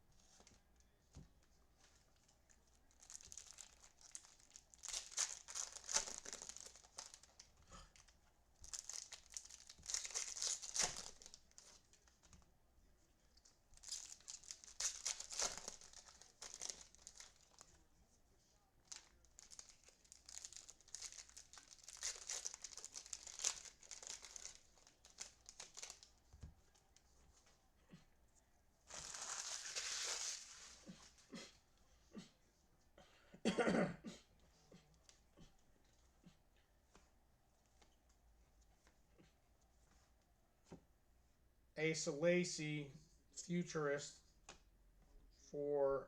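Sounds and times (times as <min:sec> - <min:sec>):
wrappers tearing and crinkling: 0:02.9 - 0:12.1, 0:13.8 - 0:17.7, 0:18.8 - 0:26.2, 0:28.9 - 0:31.2.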